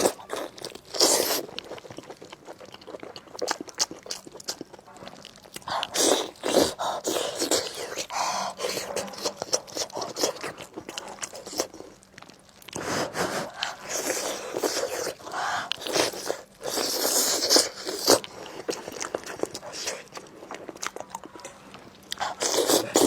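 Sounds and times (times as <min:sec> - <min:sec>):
person chewing food: 0:00.0 - 0:23.0
wet mouth sounds: 0:22.1 - 0:23.0.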